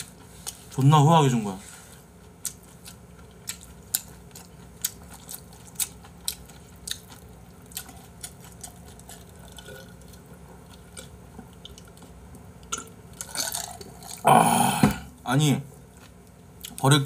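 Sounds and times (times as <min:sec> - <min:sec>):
chewing food: 0:02.2 - 0:14.2.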